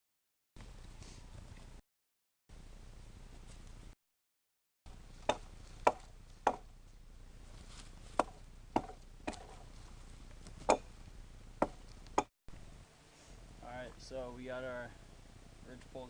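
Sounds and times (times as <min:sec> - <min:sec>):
axe chopping wood: 0:05.2 - 0:06.7, 0:08.1 - 0:09.7, 0:10.6 - 0:10.9, 0:11.6 - 0:12.3.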